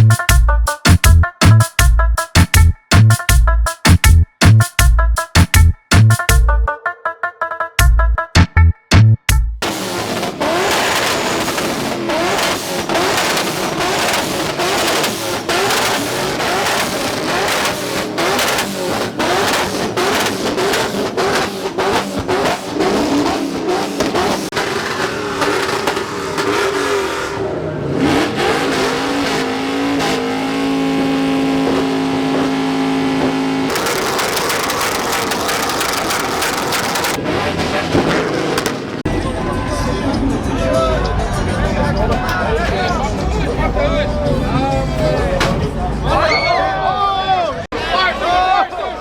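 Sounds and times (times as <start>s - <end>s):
truck engine revving: 9.6s - 46.3s.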